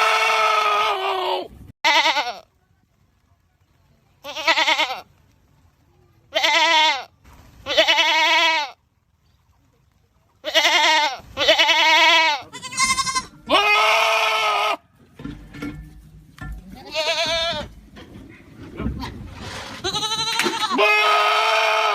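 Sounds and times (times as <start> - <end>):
goats bleating loudly: 0.0 - 2.4, 4.2 - 5.0, 6.3 - 8.8, 10.4 - 14.9, 16.8 - 17.8, 19.8 - 21.9.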